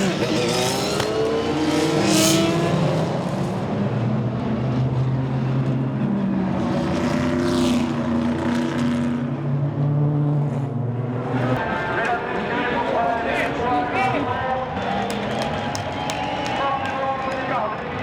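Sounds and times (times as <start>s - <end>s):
race car engine running: 0.0s - 10.0s, 10.6s - 18.0s.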